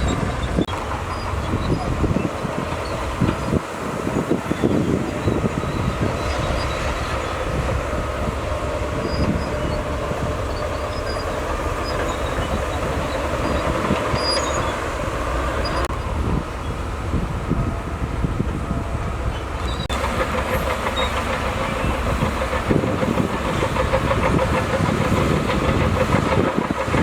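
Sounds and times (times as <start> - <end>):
bulldozer diesel engine running: 0.0 - 27.0
steel tracks squeaking: 0.0 - 27.0.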